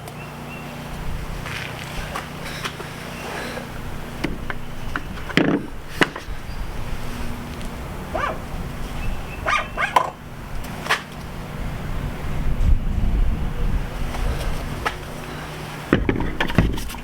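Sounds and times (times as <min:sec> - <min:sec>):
dog barking: 0:08.1 - 0:08.5, 0:09.4 - 0:10.2.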